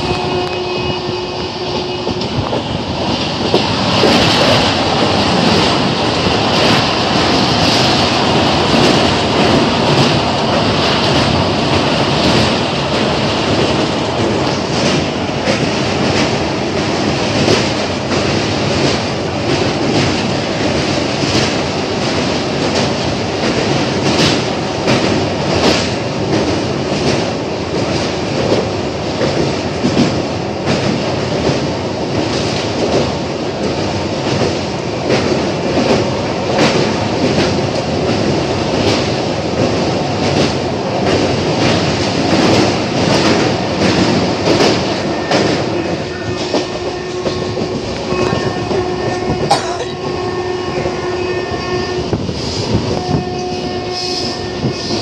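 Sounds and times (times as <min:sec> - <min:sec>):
clickety-clack over rail joints: 0:00.0 - 0:55.0
train wheels rumbling on steel bridge: 0:00.0 - 0:55.0.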